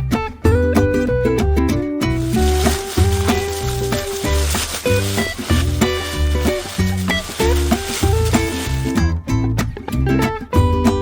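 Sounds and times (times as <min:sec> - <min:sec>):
acoustic guitar strumming: 0:02.4 - 0:09.2.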